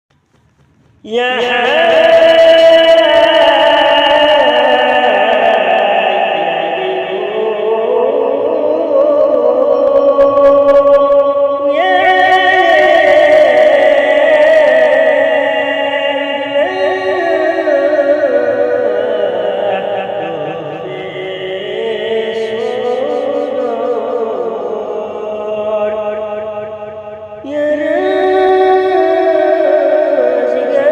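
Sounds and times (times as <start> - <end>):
person chanting solo with echo: 1.0 - 30.9.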